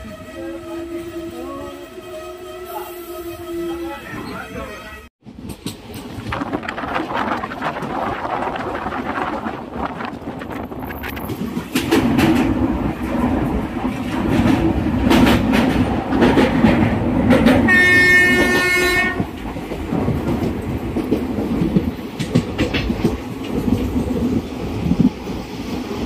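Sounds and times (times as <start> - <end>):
train rumble: 0.0 - 26.0
locomotive horn: 17.7 - 19.3.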